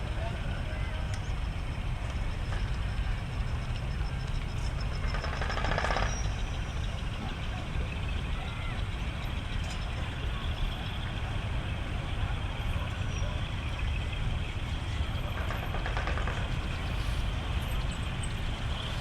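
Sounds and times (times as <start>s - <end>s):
faint voices: 0.0s - 19.0s
truck engines rumbling: 0.0s - 19.0s.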